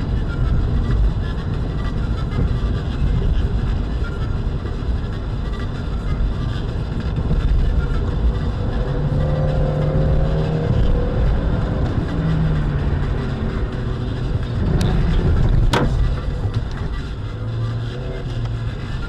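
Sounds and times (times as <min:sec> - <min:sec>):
car engine and road rumble: 0:00.0 - 0:19.0
droning tone: 0:00.0 - 0:19.0.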